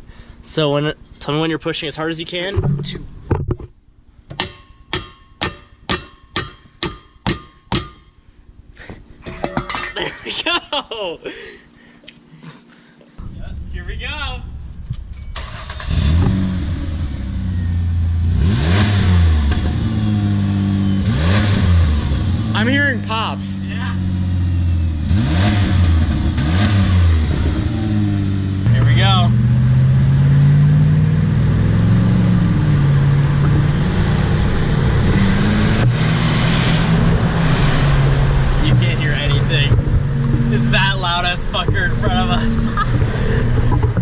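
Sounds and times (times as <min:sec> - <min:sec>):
car engine through open exhaust: 0:13.2 - 0:44.0.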